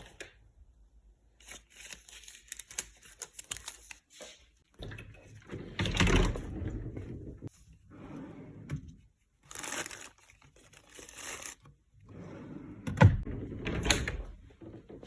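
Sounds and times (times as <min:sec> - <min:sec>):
crinkling and rustling: 0:01.4 - 0:07.9, 0:08.6 - 0:12.2.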